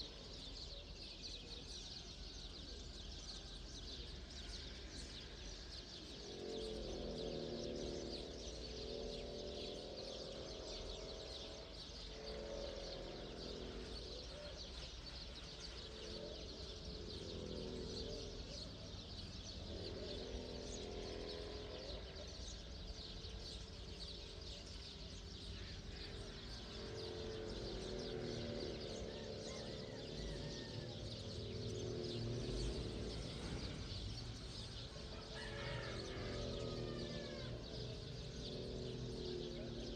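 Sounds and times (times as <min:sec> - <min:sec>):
many small birds chirping: 0:00.0 - 0:39.9.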